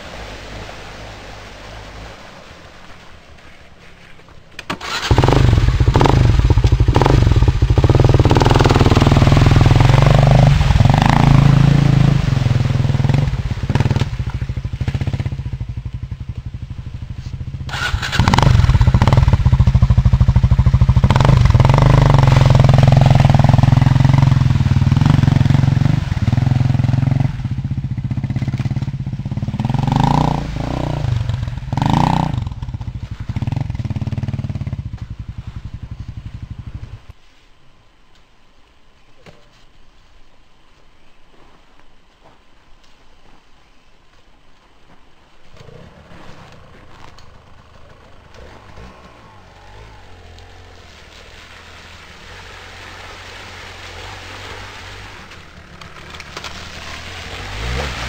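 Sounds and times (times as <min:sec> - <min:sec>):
dirt bike engine revving: 0:04.8 - 0:37.0, 0:47.4 - 0:58.0.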